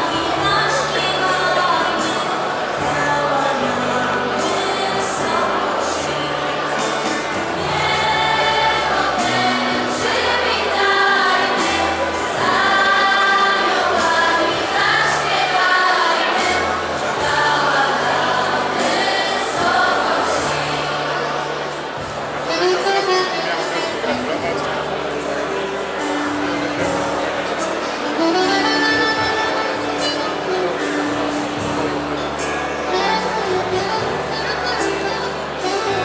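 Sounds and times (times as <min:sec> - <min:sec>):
choir singing a carol: 0:00.0 - 0:23.3
low held bass notes: 0:00.0 - 0:36.0.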